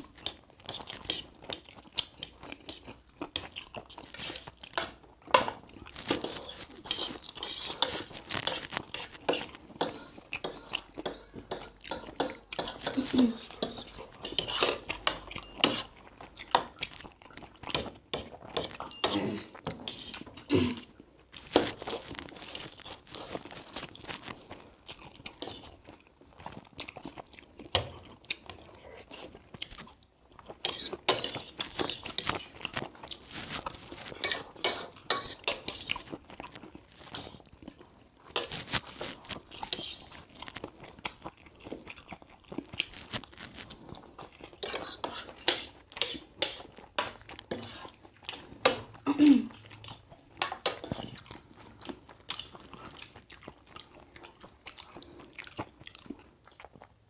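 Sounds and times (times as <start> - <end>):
chewing and crunching food: 0.0 - 57.0
plates and cutlery clinking: 9.3 - 16.0, 17.8 - 20.2, 44.6 - 47.7.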